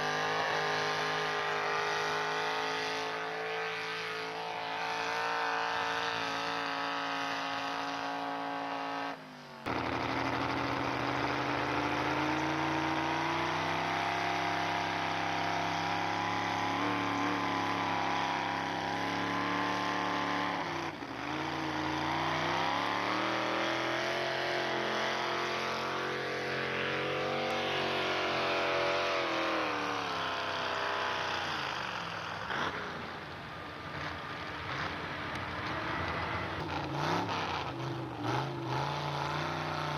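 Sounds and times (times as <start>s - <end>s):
truck engine revving hard: 0.0s - 39.9s.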